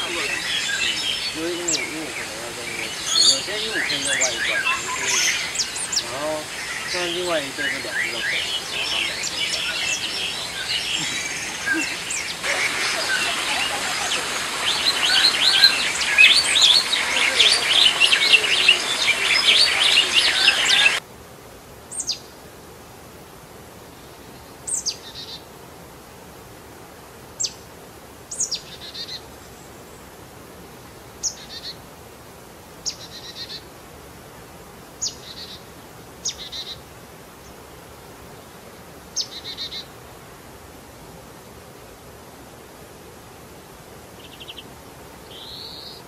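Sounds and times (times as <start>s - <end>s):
chorus of birds chirping: 0.0s - 21.0s, 39.2s - 39.9s, 44.2s - 46.0s
faint steady hiss: 0.0s - 46.0s.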